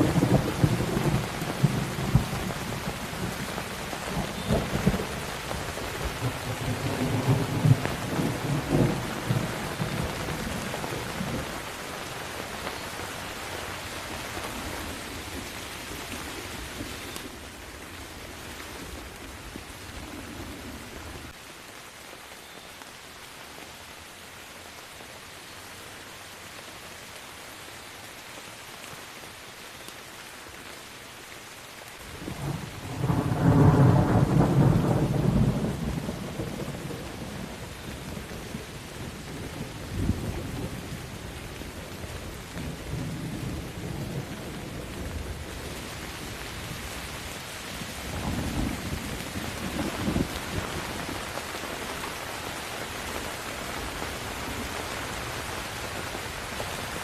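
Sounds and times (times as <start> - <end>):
steady rain falling: 0.0 - 57.0
thunder rolling: 4.1 - 11.5.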